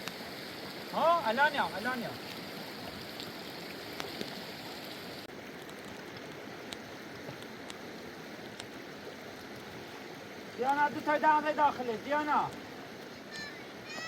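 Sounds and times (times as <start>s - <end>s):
fast-flowing river rushing: 8.2s - 14.0s.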